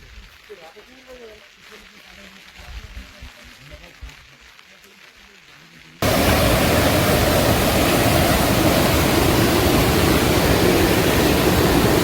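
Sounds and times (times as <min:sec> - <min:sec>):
water rushing: 0:06.0 - 0:12.0.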